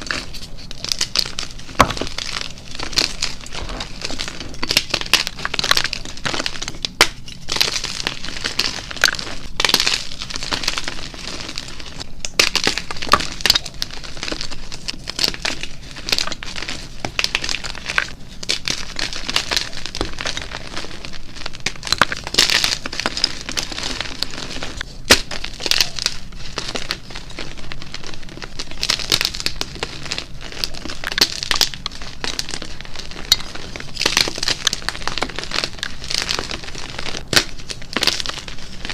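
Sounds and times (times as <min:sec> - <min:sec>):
chalk crunching and crackling: 0:00.0 - 0:38.9.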